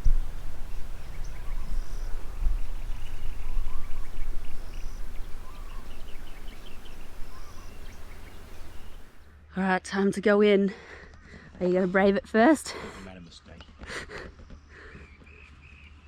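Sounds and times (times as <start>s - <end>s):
birds chirping and calling: 0.0s - 9.2s
short high bird calls: 0.0s - 9.2s
steady low rumble: 0.0s - 9.3s.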